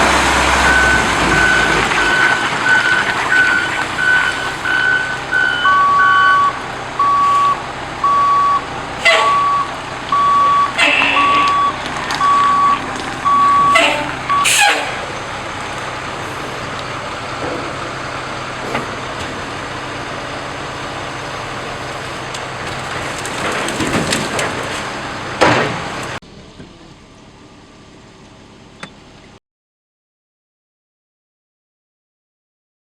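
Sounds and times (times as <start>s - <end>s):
truck backup alarm beeping: 0.0s - 26.2s
truck engine running: 0.0s - 29.4s.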